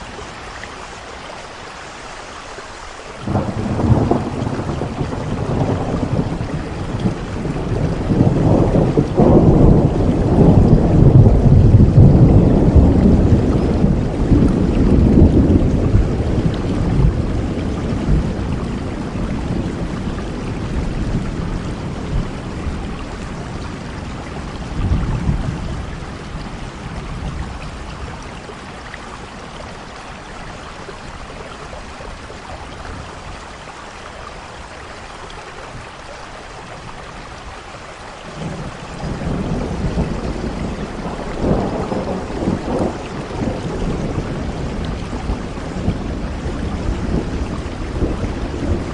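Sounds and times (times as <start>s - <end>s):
heavy rain falling: 0.0s - 48.9s
rolling thunder: 3.2s - 28.6s, 38.3s - 48.9s.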